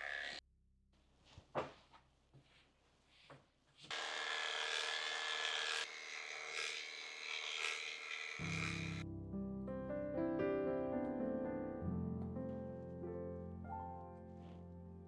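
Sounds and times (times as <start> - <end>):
electric clippers buzzing: 0.0 - 0.4, 3.9 - 9.0
piano music: 8.4 - 15.0.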